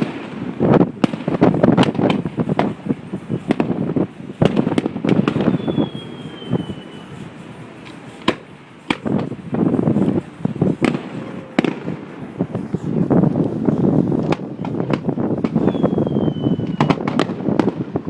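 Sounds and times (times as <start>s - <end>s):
fireworks bangs and crackling: 0.0s - 18.0s
sharp firework reports: 0.0s - 18.0s
falling firework whistle: 4.4s - 13.0s, 14.2s - 18.0s.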